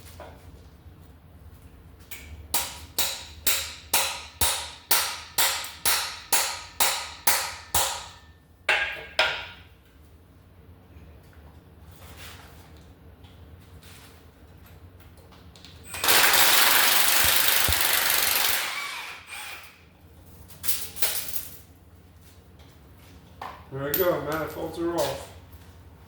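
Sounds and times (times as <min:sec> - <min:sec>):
hammer striking metal: 0:02.5 - 0:09.6.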